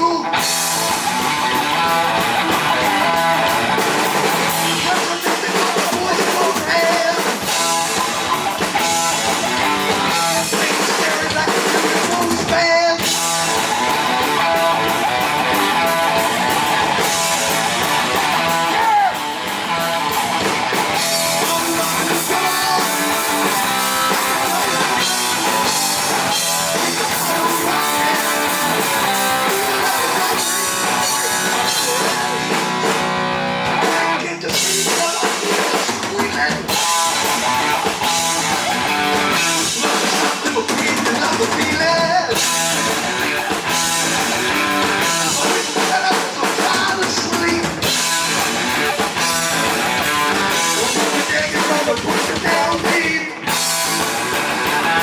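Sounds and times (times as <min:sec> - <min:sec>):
heavy metal band playing: 0:00.0 - 0:55.0.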